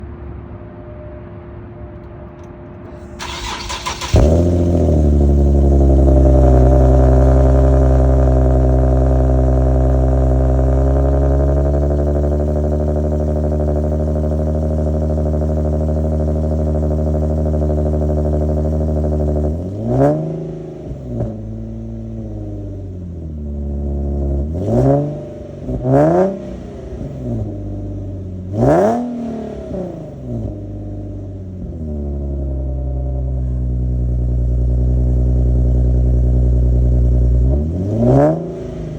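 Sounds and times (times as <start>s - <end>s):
car engine idling: 2.9s - 38.9s
engine starter cranking: 3.1s - 4.8s
engine revving: 3.2s - 38.9s.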